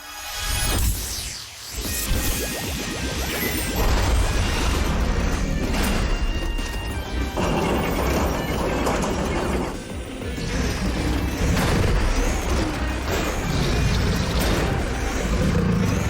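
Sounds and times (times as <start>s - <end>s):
mechanical clattering and crashing: 3.8s - 16.0s.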